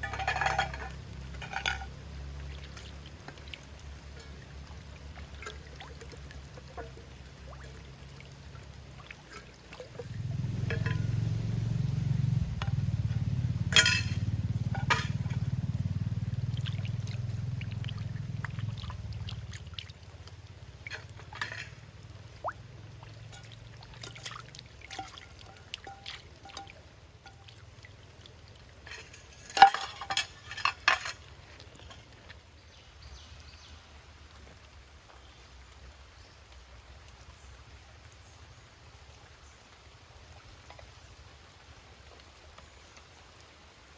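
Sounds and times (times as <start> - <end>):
metal cookware clinking: 0.0 - 1.9, 10.6 - 11.3, 13.7 - 15.5, 20.9 - 21.8, 28.9 - 31.2.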